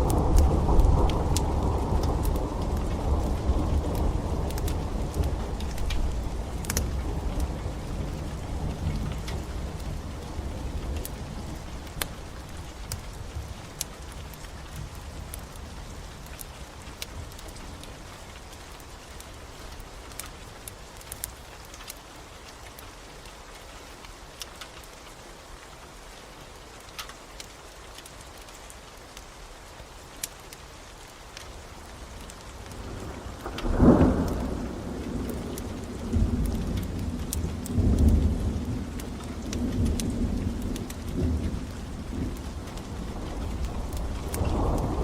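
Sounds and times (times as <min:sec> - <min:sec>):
rolling thunder: 0:00.0 - 0:12.7, 0:32.8 - 0:45.0
faint crackles: 0:00.0 - 0:45.0
steady rain: 0:00.0 - 0:45.0.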